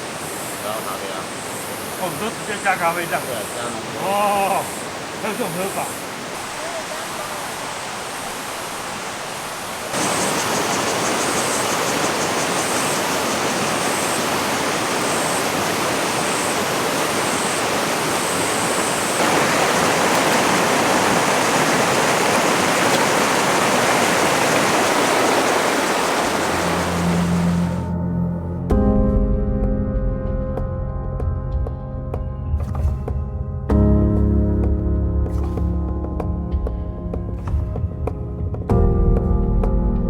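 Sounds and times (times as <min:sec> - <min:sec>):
mountain stream rushing: 0:00.0 - 0:27.9.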